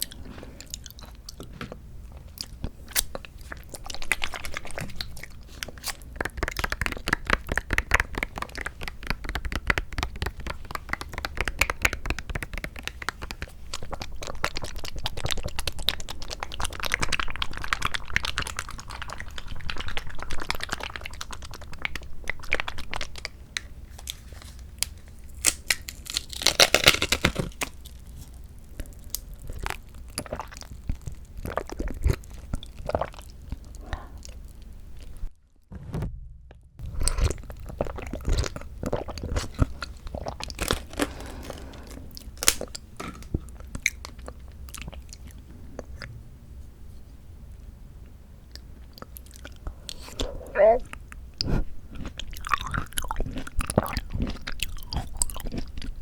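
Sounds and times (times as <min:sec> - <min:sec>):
chewing fruit: 0:00.0 - 0:35.3, 0:36.8 - 0:46.2, 0:48.0 - 0:56.0
small mouth clicks: 0:48.5 - 0:55.2.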